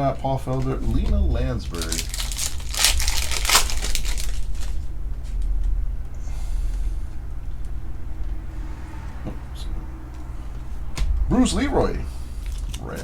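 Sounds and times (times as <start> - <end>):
foil wrapper tearing and crinkling: 1.7 - 4.8.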